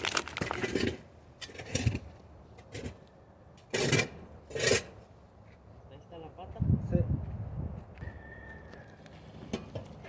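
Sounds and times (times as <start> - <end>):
metal shovel scraping ash: 0.0 - 3.0, 3.6 - 5.1.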